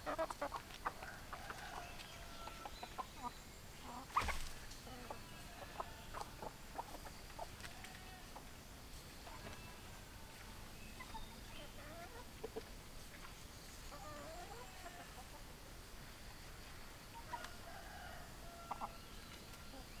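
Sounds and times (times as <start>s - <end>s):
hens clucking: 0.0s - 8.5s, 9.2s - 15.5s.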